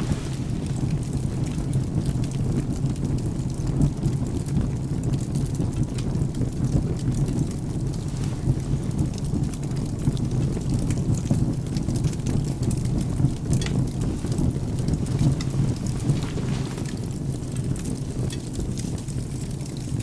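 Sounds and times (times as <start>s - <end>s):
thunder rumbling: 0.0s - 2.3s
rain: 0.0s - 20.0s
wood fire crackling: 0.0s - 20.0s.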